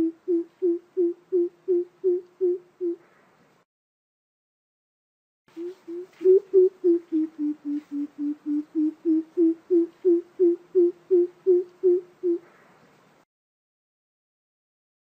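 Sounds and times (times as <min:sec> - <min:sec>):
bird deep hooting calls: 0:00.0 - 0:03.2, 0:05.6 - 0:12.7.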